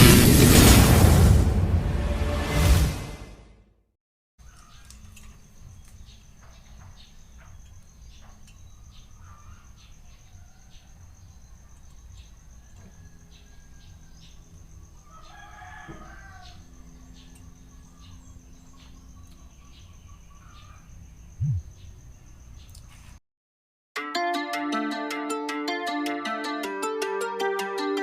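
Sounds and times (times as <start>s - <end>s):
rooster crowing: 12.5s - 17.3s
brief low thump: 21.4s - 21.7s.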